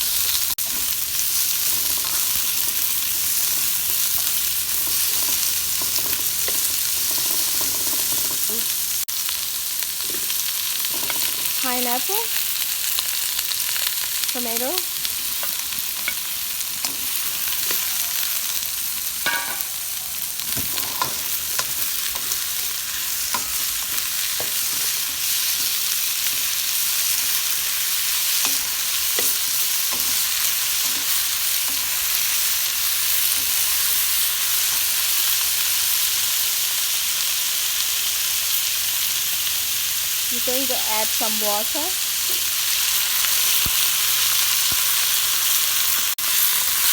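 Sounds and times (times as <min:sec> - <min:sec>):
vegetables sizzling in hot oil: 0:00.0 - 0:46.9.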